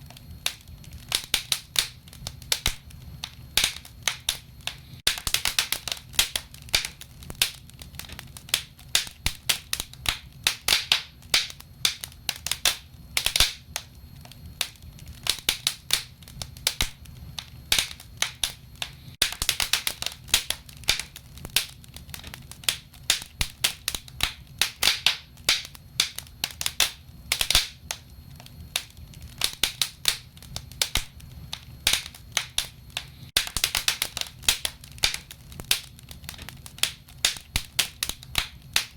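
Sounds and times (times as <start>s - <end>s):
low steady hum: 0.0s - 5.1s, 20.0s - 33.3s
wood fire crackling: 0.0s - 38.9s.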